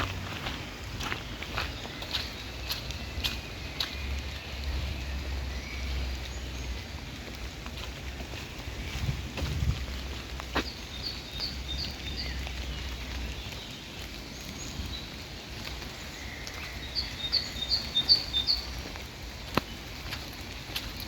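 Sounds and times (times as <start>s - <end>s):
light rain hiss: 0.0s - 21.0s.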